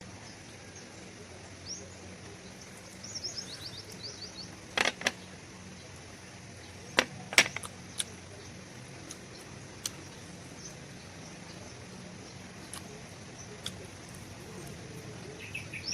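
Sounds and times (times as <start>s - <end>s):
steady low hum: 0.0s - 15.9s
bird chirping: 0.2s - 15.9s
sharp clicks or knocks: 4.8s - 5.2s, 7.0s - 7.7s.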